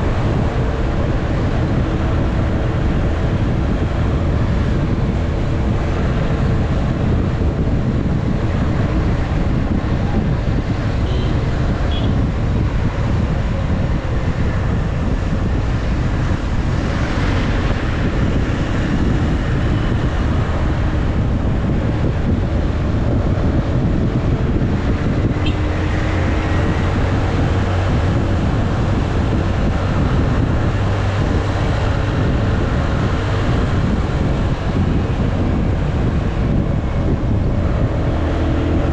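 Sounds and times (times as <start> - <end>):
wind noise on microphone: 0.0 - 38.9.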